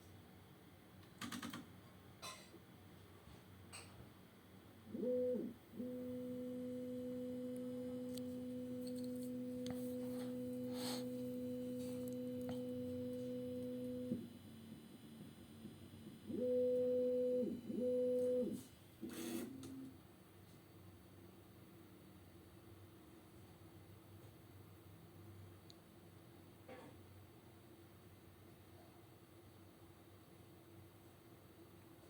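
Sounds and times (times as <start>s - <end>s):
printer motors humming: 4.9s - 20.0s.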